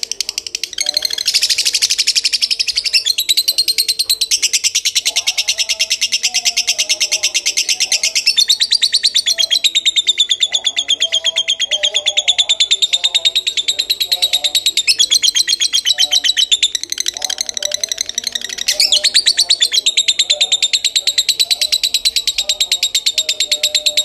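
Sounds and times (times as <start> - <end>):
lovebird chattering trill: 0.0 - 24.0
lower bird calls: 0.0 - 24.0.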